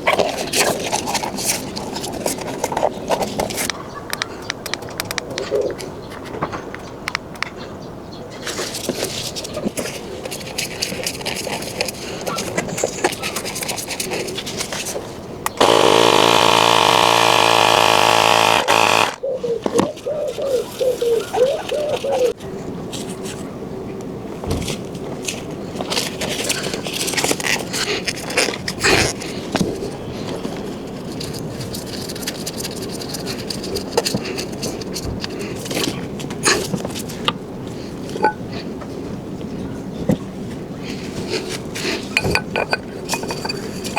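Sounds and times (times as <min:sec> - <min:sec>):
parts clicking and clattering: 0:15.5 - 0:19.2
small power tool motor running: 0:15.6 - 0:19.2.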